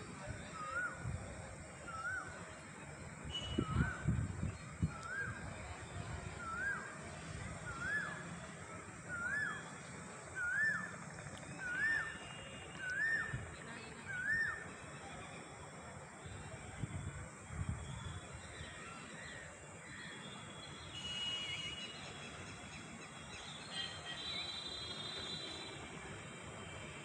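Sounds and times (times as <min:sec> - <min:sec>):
bird whistling call: 0:07.7 - 0:08.2, 0:10.4 - 0:13.4.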